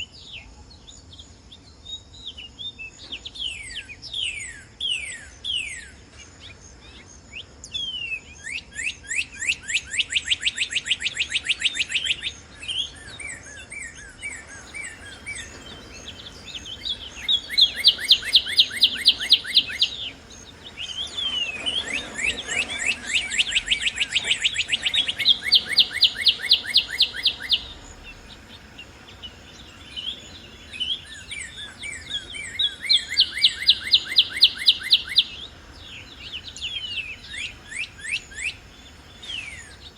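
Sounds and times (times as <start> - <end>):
cardinals singing whistled notes: 0.0 - 39.9
thin high bird trills: 14.6 - 39.9.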